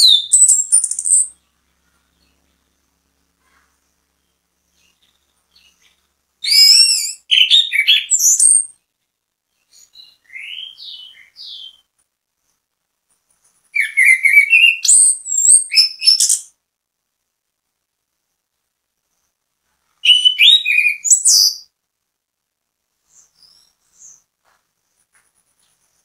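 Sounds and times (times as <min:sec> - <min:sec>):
thrush singing whistles and trills: 0:00.0 - 0:01.4, 0:04.8 - 0:08.8, 0:09.6 - 0:11.9, 0:13.8 - 0:16.6, 0:20.0 - 0:21.7.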